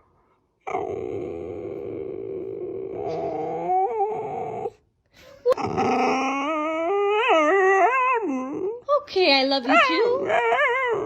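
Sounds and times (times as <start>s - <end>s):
dog howling whines: 0.7s - 4.8s, 5.6s - 8.8s.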